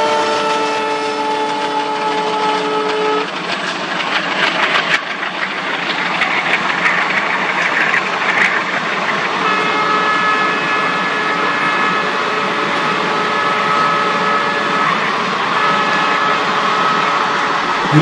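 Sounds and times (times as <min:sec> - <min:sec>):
locomotive horn: 0:00.0 - 0:03.3, 0:09.4 - 0:18.0
train wheels clattering on rails: 0:00.0 - 0:18.0.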